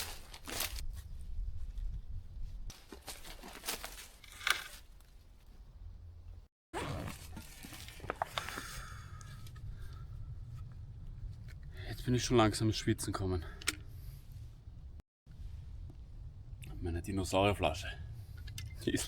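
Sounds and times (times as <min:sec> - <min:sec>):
dry leaves and twigs rustling: 0:00.0 - 0:05.6, 0:07.0 - 0:10.0.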